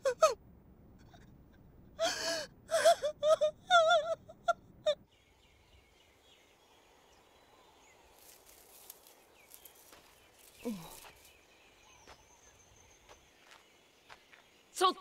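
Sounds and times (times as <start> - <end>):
birds chirping: 5.1 - 15.0.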